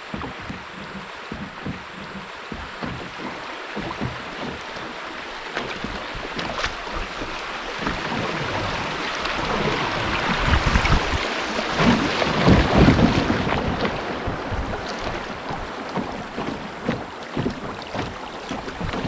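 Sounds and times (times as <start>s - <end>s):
river water rushing and splashing: 0.0s - 19.0s
small splashes: 0.0s - 19.0s
wind rumble on microphone: 5.7s - 19.0s.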